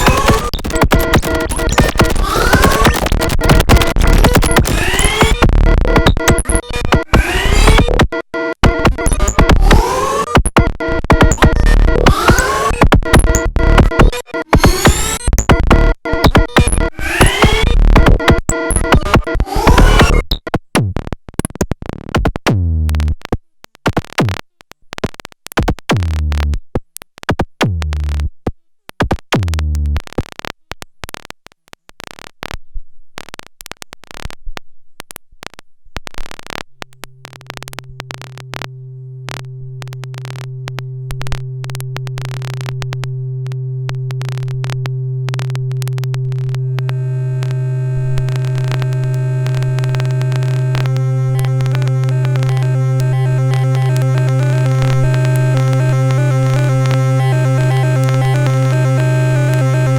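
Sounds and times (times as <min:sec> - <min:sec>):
clicking electronic percussion: 0:00.0 - 0:20.6, 0:36.6 - 0:59.9
high held synth tones: 0:36.8 - 0:59.9
low synthesizer drone: 0:36.8 - 0:59.9.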